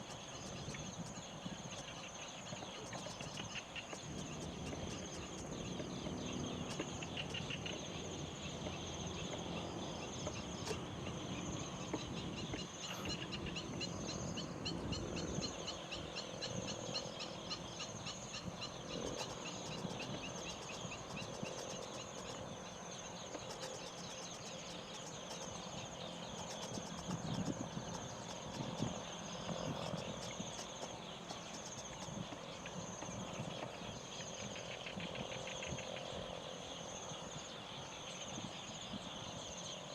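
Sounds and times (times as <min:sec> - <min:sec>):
insect pulsing trill: 0:00.0 - 0:39.9
insects droning: 0:00.0 - 0:39.9
bird and fowl calls: 0:08.6 - 0:22.5.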